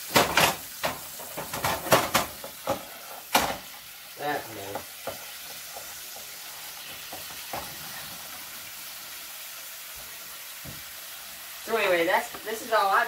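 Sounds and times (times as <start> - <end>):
squash sizzling in a frying pan: 0.0 - 13.0
utensil knocking against pan: 4.7 - 6.3.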